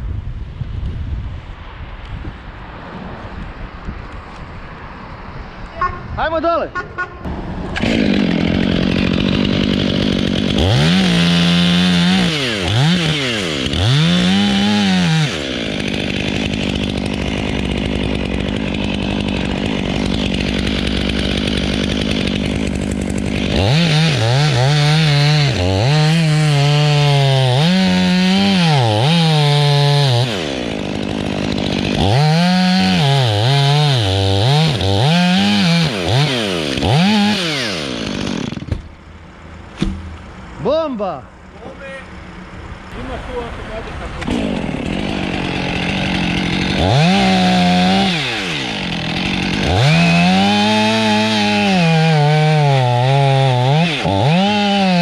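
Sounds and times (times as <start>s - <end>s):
chainsaw revving: 7.6s - 38.8s, 43.0s - 55.0s.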